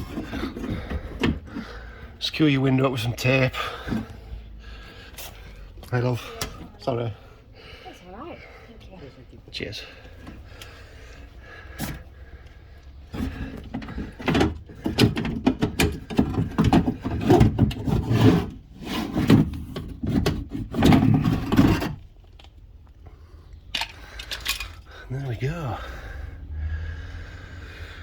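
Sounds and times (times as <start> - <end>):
knocking and scraping on sheet metal: 13.1 - 22.0.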